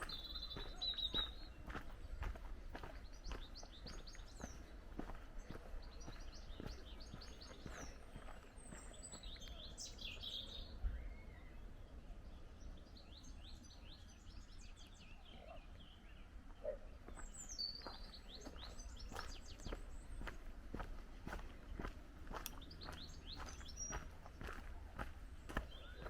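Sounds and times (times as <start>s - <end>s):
soft footsteps: 0.0s - 9.4s, 17.0s - 26.0s
small birds chirping and singing: 0.0s - 26.0s.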